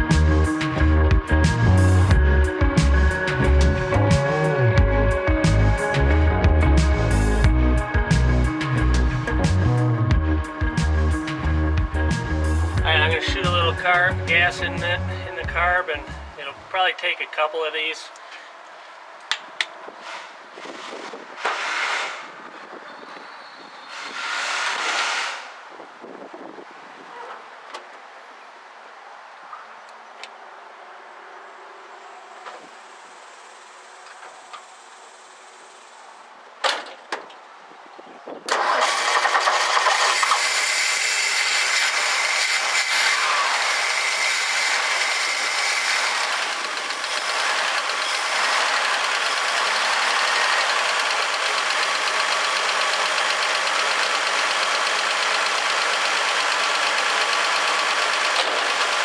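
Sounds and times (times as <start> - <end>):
pickup engine starting and running: 0.0 - 17.5, 38.5 - 59.0.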